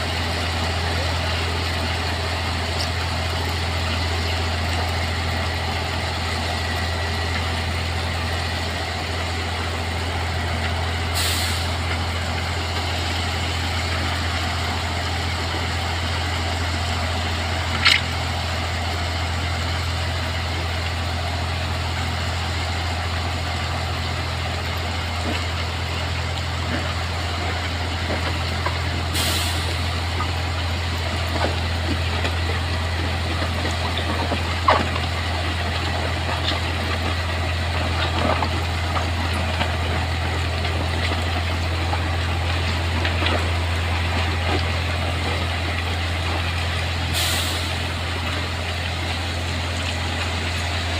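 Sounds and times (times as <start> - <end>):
diesel locomotive idling: 0.0 - 50.9
air hissing: 11.2 - 11.8, 29.1 - 29.9, 47.1 - 47.9.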